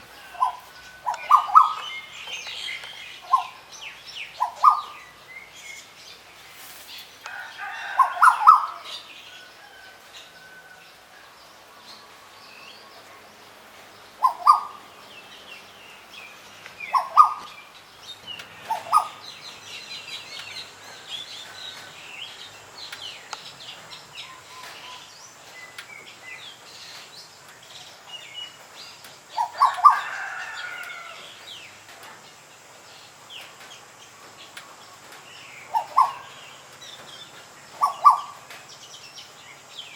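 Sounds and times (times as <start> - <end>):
faint high bird chirps: 0.2 - 3.6, 4.2 - 5.6, 37.0 - 38.5.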